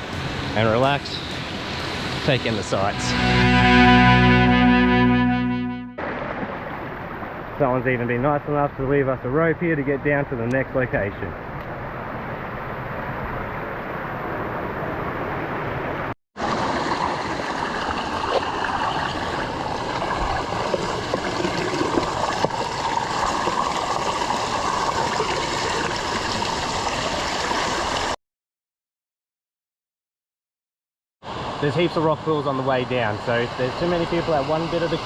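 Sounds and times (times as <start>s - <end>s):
creek water splashing over rocks: 6.0s - 7.8s, 16.4s - 28.1s.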